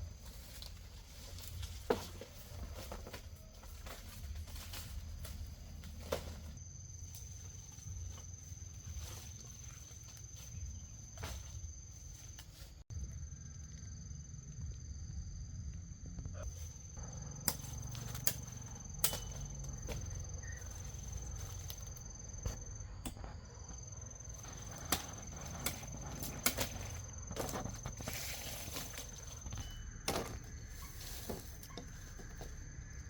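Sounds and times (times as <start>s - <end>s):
insect trilling: 16.1s - 33.0s
sharp knocks and snaps: 17.4s - 20.0s, 24.7s - 27.0s.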